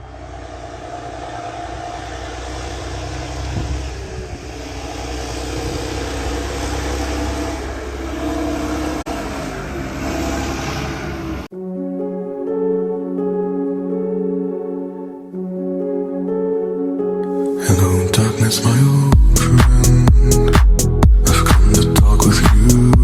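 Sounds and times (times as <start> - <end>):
tractor engine under load: 0.0 - 11.5
music: 11.5 - 23.0.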